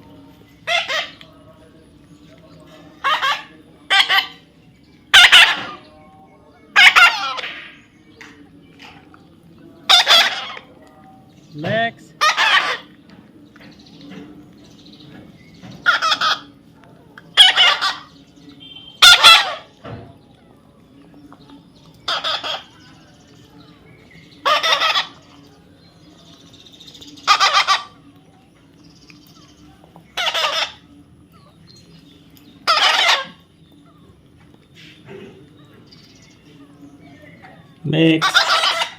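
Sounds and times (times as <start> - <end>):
parrot squawking: 0.6 - 1.2, 3.0 - 4.5, 5.1 - 5.8, 6.7 - 7.8, 9.9 - 10.7, 12.1 - 12.9, 15.8 - 16.5, 17.4 - 19.7, 22.0 - 22.8, 24.4 - 25.4, 27.2 - 28.0, 30.1 - 30.9, 32.6 - 33.5, 38.1 - 38.9.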